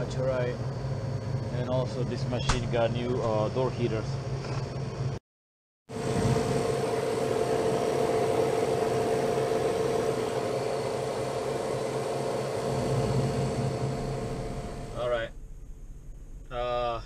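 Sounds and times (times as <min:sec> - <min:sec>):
freezer humming: 0:05.9 - 0:15.1.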